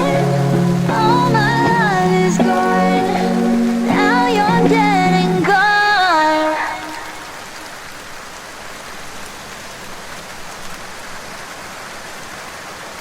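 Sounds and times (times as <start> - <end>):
rain hissing: 0.0 - 13.0.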